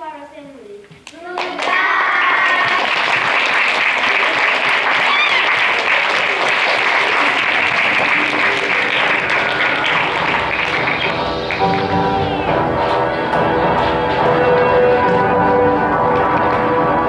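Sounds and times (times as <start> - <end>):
audience applauding: 1.4 - 17.0
person whooping: 5.0 - 5.6
faint music: 6.3 - 17.0.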